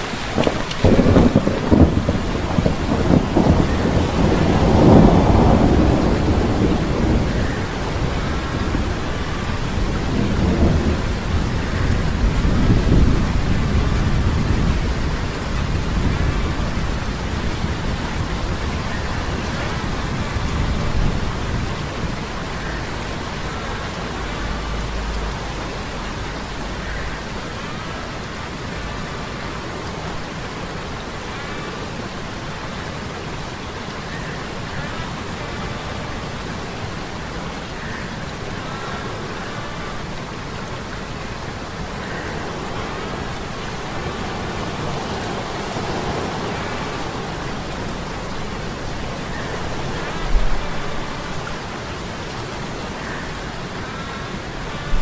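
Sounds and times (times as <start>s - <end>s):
rolling thunder: 0.0s - 22.3s
steady rain: 0.0s - 55.0s.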